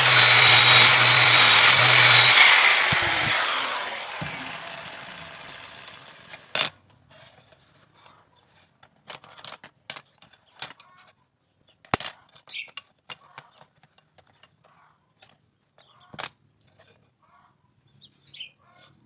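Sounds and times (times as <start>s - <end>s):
power tool spinning down: 0.0s - 6.5s.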